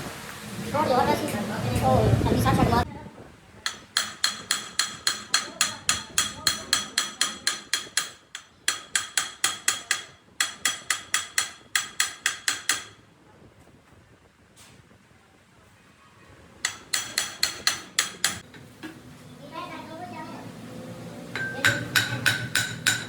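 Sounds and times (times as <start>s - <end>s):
hammer striking steel: 3.6s - 13.0s, 16.6s - 18.6s, 21.3s - 23.0s.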